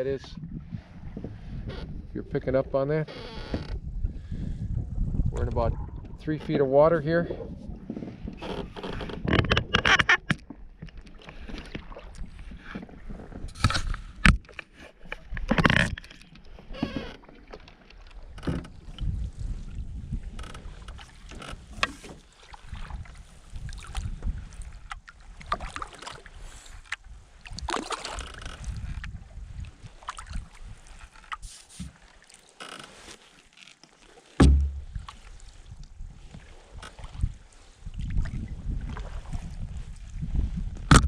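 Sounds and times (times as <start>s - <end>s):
water splashing against hull: 0.0s - 41.0s
paddle strokes: 5.4s - 40.6s
sharp knocks: 34.4s - 35.0s.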